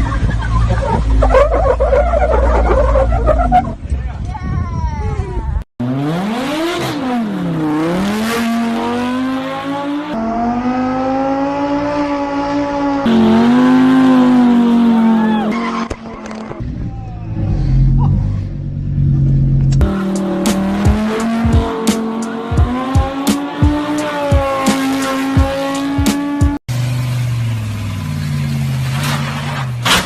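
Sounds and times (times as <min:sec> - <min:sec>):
car engines revving: 0:00.0 - 0:04.1, 0:05.8 - 0:30.0
tyres squealing: 0:00.6 - 0:03.9.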